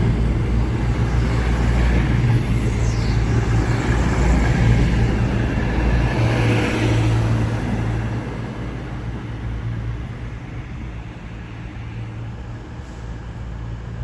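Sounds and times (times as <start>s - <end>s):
diesel train engines droning: 0.0s - 14.0s.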